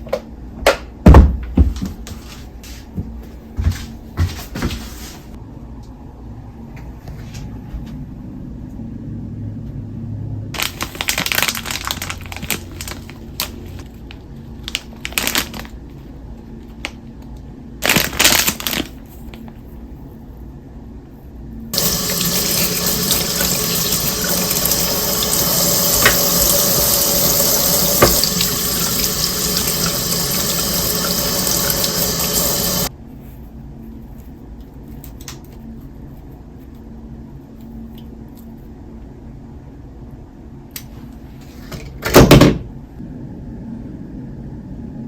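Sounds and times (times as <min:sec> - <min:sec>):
tap water running into sink: 0:21.8 - 0:32.9.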